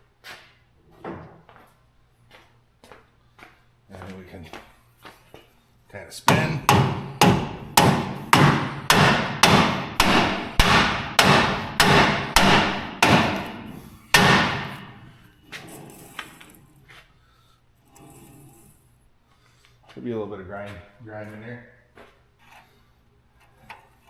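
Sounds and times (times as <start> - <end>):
rubber mallet striking metal: 6.3 - 15.0.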